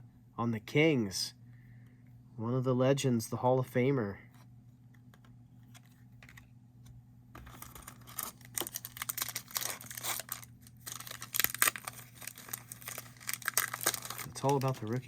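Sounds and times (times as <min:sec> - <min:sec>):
foil wrapper tearing and crinkling: 0:07.4 - 0:15.0.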